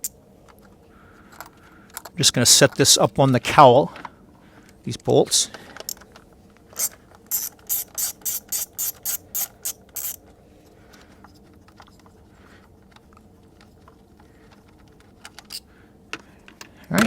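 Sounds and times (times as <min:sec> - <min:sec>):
ratchet wrench clicking: 0:06.8 - 0:10.2.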